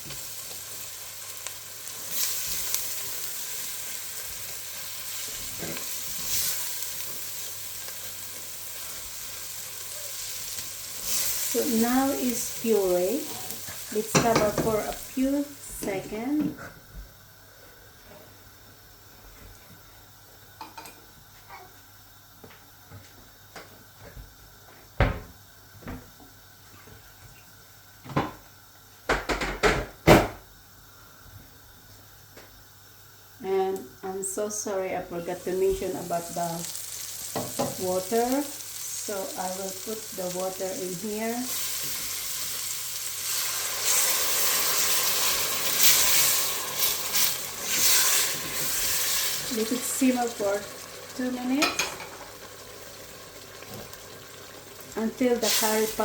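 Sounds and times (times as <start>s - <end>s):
water sizzling in a hot pan: 0.0s - 16.5s, 33.4s - 56.0s.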